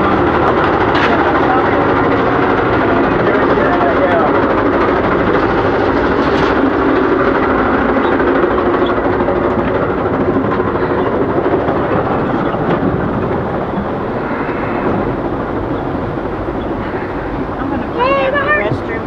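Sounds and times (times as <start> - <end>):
train rumble and rattle: 0.0 - 19.0.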